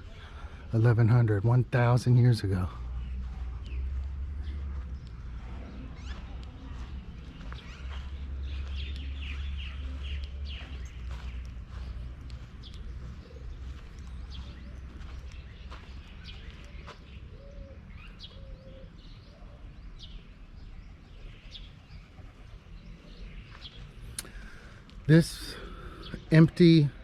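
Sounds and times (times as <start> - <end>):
steady low rumble: 0.0 - 17.3.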